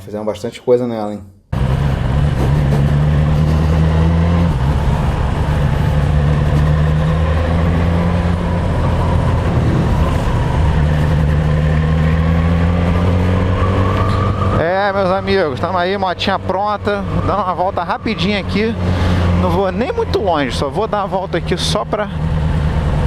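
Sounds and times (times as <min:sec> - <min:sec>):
motorcycle engine running: 0:01.6 - 0:23.0.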